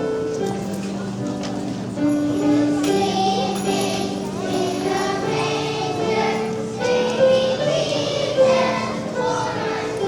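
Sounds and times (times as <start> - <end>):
children's choir singing: 2.1 - 10.0.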